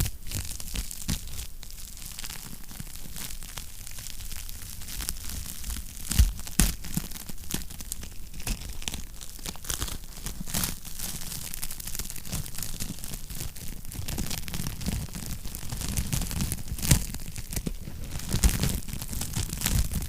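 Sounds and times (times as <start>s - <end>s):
wood fire crackling: 6.9s - 20.0s.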